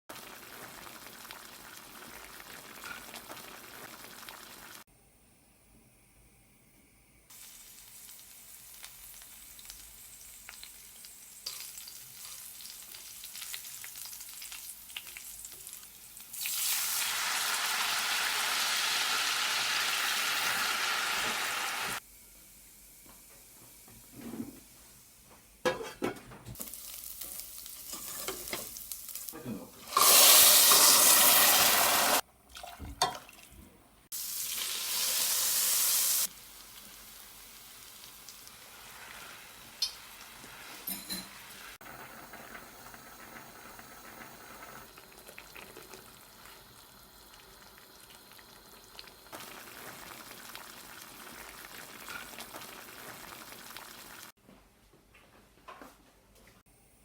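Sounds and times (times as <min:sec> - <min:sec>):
meat sizzling in a pan: 0:00.1 - 0:04.8, 0:07.3 - 0:22.0, 0:26.6 - 0:32.2, 0:34.1 - 0:54.4.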